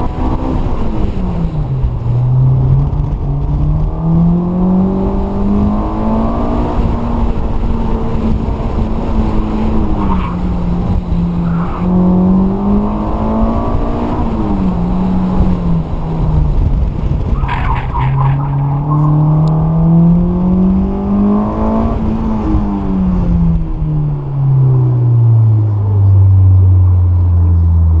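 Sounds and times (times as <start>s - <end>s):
car engine revving: 0.0s - 28.0s
tires squealing: 9.6s - 13.5s, 17.2s - 20.2s.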